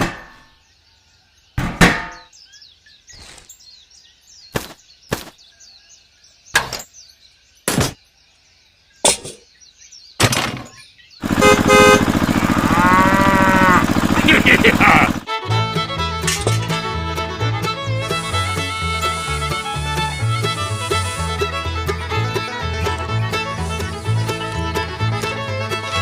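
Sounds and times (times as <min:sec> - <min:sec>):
sharp knocks: 0:00.0 - 0:00.4, 0:01.6 - 0:02.2
birds chirping faintly: 0:00.1 - 0:15.2
loud steady multi-pitched tone: 0:11.2 - 0:15.3.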